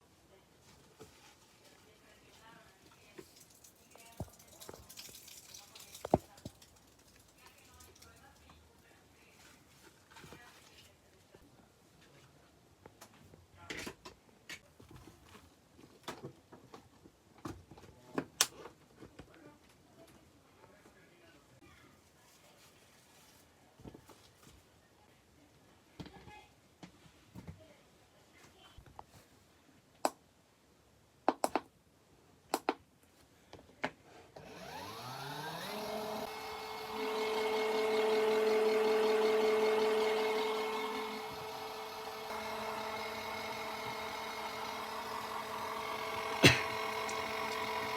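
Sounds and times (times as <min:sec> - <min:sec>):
washing machine motor spinning: 0:34.4 - 0:47.9.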